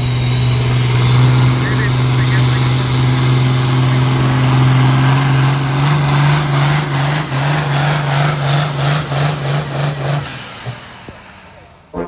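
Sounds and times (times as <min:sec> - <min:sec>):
vehicle engine running hard: 0:00.0 - 0:12.0.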